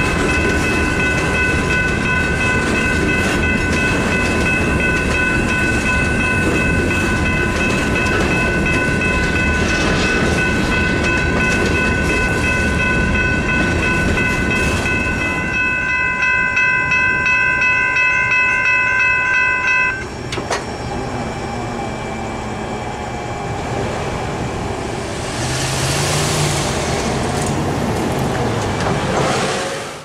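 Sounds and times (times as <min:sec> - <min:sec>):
crossing warning bell ringing: 0:00.0 - 0:22.8
freight train rumbling past: 0:00.0 - 0:30.0.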